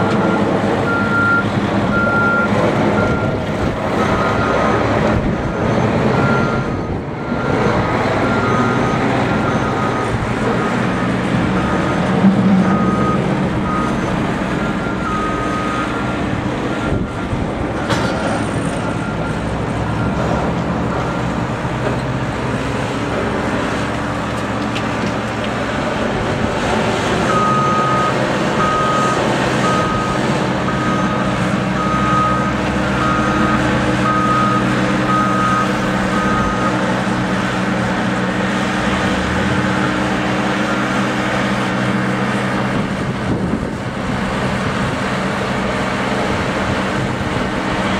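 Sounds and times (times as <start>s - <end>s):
reversing alarm beeping: 0.0s - 3.4s, 4.0s - 4.9s, 5.5s - 18.0s, 18.8s - 20.3s, 27.3s - 36.9s
heavy vehicle engine running: 0.0s - 47.9s.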